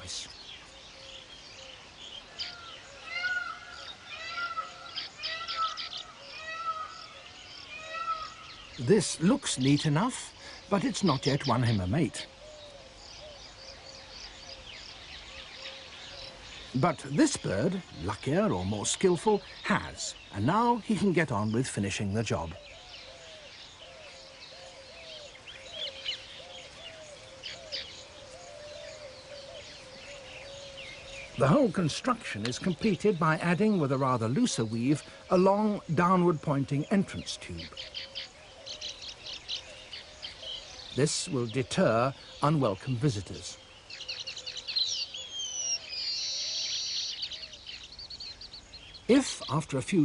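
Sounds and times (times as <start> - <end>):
high bird chirps: 0.0 - 50.0
weaver birds calling: 0.0 - 50.0
repeating low bird call: 2.4 - 8.9.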